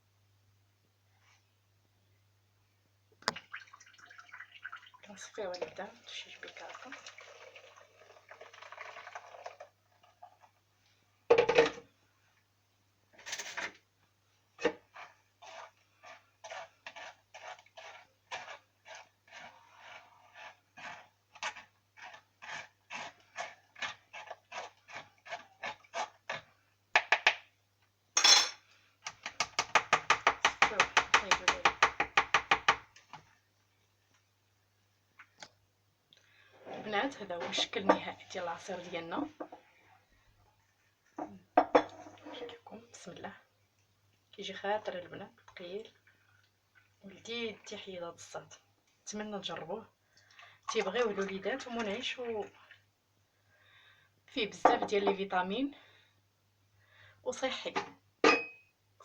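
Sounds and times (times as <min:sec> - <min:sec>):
spoon scraping through a sieve: 0:14.6 - 0:26.4.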